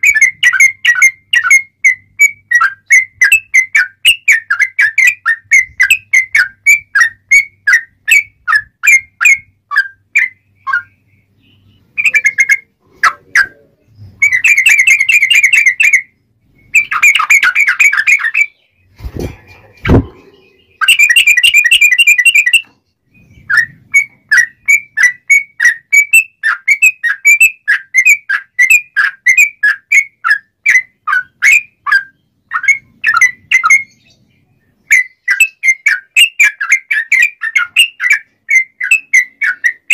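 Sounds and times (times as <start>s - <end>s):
bird whistling notes and trills: 0.0s - 39.9s
low thumps: 18.9s - 20.6s.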